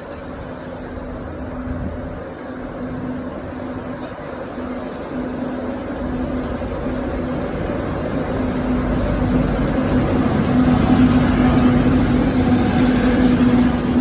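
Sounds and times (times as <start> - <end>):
train rumbling: 0.0 - 14.0
train engine tone: 0.1 - 14.0.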